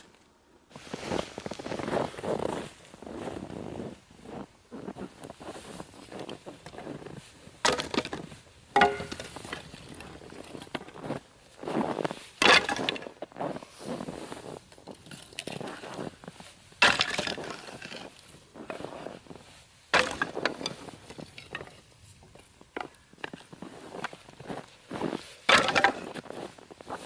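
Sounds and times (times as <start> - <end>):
wood crunching: 4.3 - 27.0
firewood cracking: 7.5 - 11.1, 12.4 - 13.4, 14.7 - 19.0, 19.9 - 24.6, 25.4 - 26.4.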